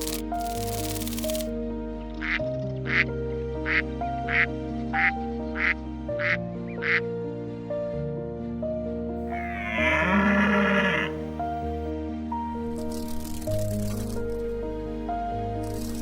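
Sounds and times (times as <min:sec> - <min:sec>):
background music: 0:03.2 - 0:12.8
duck quacking: 0:09.4 - 0:11.2.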